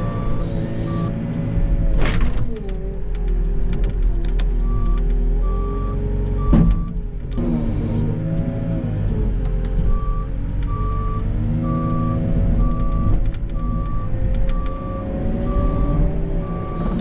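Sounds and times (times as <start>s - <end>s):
backup alarm beeping: 0.0s - 1.1s, 4.6s - 7.0s, 9.9s - 17.0s.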